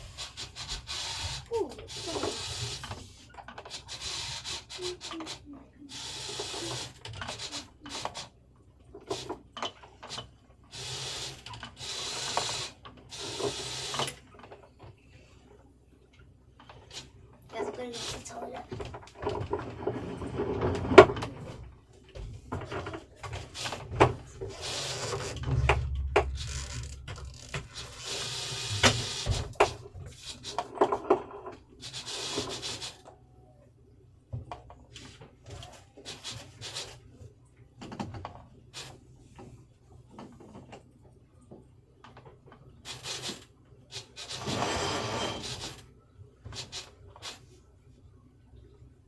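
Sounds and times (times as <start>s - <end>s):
rushing scraping noises: 23.3s - 30.5s.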